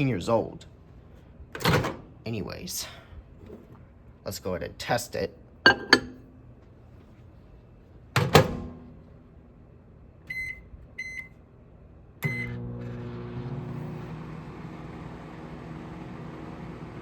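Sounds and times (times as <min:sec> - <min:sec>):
microwave humming: 0:08.1 - 0:17.0.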